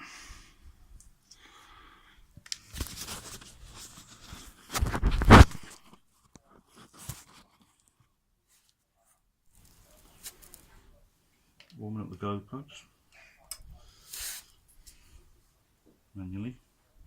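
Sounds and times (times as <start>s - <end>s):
rustling: 2.5s - 11.0s
scraping and crunching: 2.6s - 6.0s.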